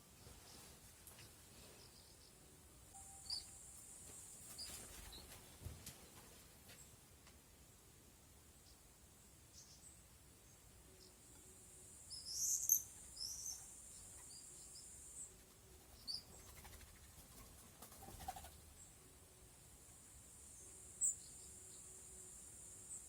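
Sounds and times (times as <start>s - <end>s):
high-pitched hiss: 2.9s - 4.6s.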